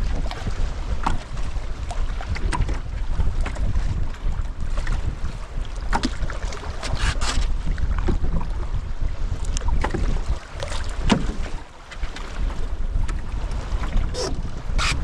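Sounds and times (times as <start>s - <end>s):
water splashing from paddling: 0.0s - 8.5s, 9.2s - 15.0s
wind buffeting microphone: 0.0s - 15.0s.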